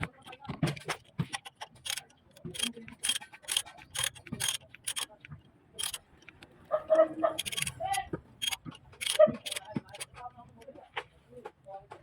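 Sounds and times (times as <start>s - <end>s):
hand tools clicking on metal: 0.0s - 6.5s, 7.4s - 10.3s.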